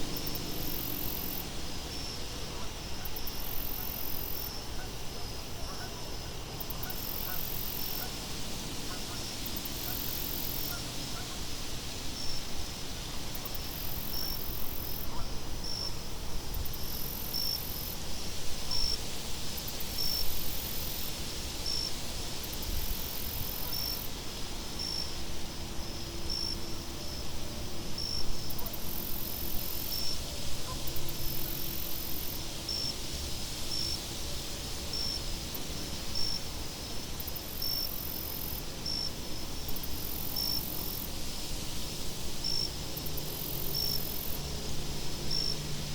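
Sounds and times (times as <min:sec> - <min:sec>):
hissing insect trill: 0:00.1 - 0:26.7, 0:27.9 - 0:45.9
cricket chirps: 0:00.1 - 0:45.9.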